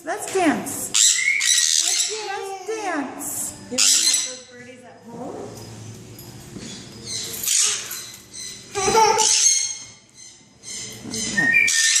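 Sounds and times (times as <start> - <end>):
small birds chirping: 0.9 - 2.8, 6.6 - 12.0.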